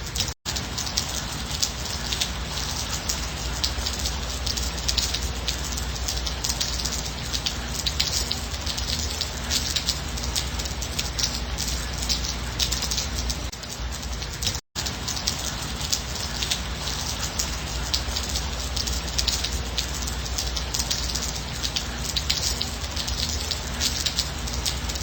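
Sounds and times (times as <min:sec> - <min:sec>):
steady rain patter: 0:00.0 - 0:25.0.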